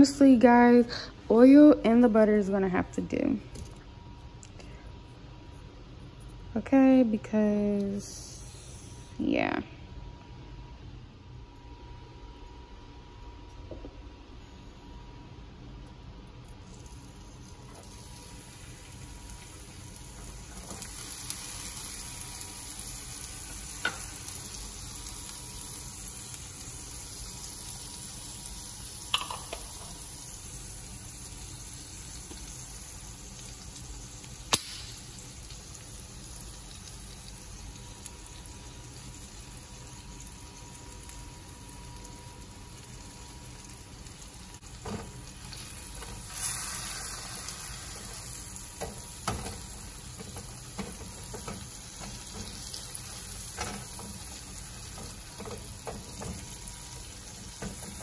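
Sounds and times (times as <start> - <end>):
garlic sizzling in pan: 16.6 - 58.0.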